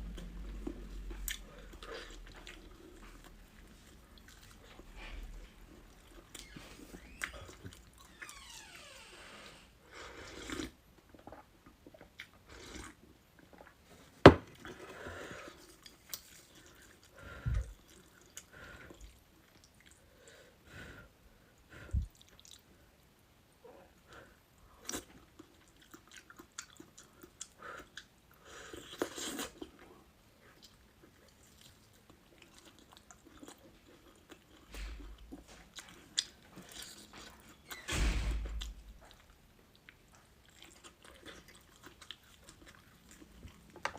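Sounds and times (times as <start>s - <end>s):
crunchy chewing: 24.8s - 37.7s, 38.6s - 43.9s.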